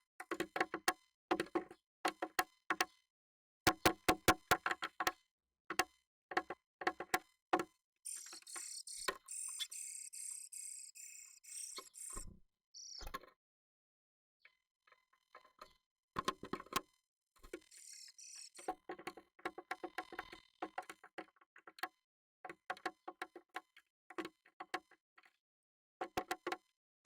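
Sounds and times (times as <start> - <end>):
harsh scratchy bird calls: 8.1 - 13.1, 17.7 - 18.7.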